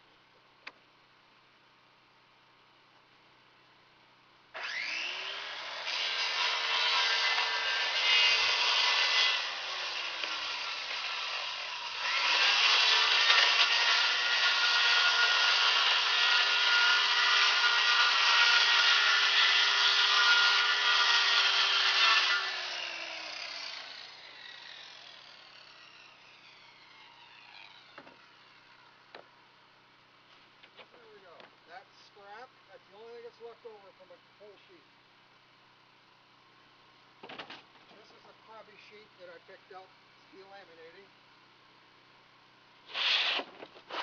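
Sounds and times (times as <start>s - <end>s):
circular saw cutting plywood: 4.6s - 29.2s, 42.9s - 44.0s.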